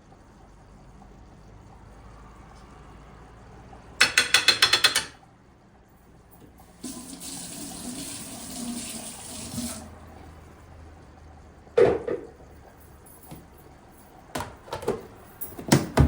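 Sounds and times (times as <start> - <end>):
kitchen tap running: 6.6 - 10.4.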